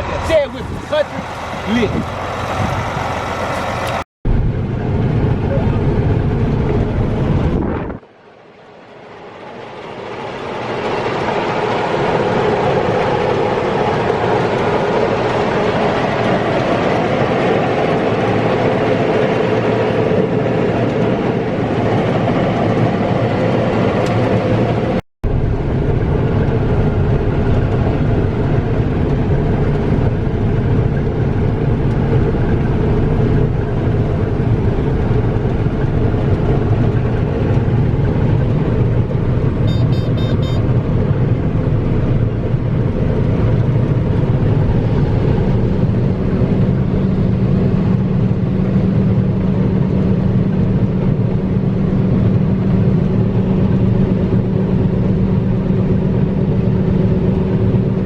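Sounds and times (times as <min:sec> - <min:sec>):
diesel engine under load: 0:00.0 - 0:58.0
deep steady hum: 0:23.6 - 0:58.0
high beeps: 0:39.6 - 0:40.6.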